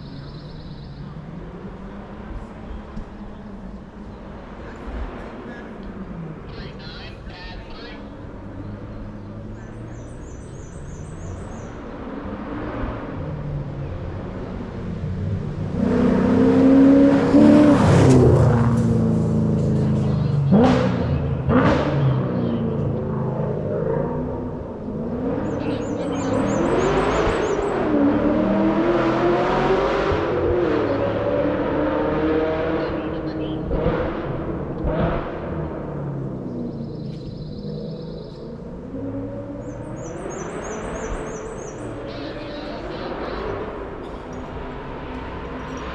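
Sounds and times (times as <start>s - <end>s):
bird chirping: 0.0s - 1.3s, 6.5s - 12.0s, 25.4s - 27.9s, 36.4s - 44.5s
race car engine revving: 0.0s - 45.9s.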